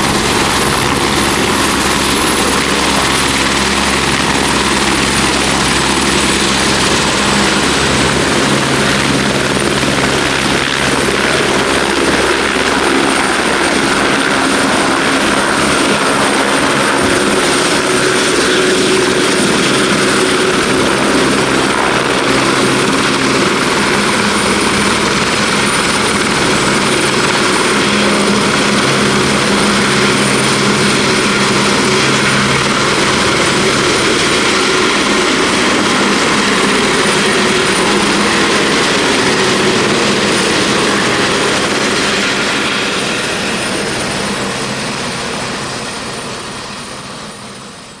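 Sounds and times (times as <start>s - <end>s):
helicopter rotor and engine: 0.0s - 48.0s
high turbine whine: 0.0s - 48.0s.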